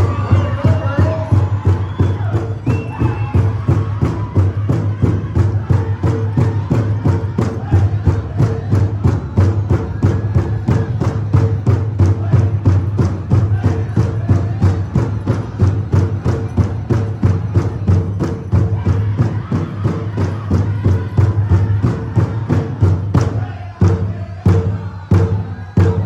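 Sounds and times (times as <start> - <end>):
big drum fast beat: 0.0 - 26.0.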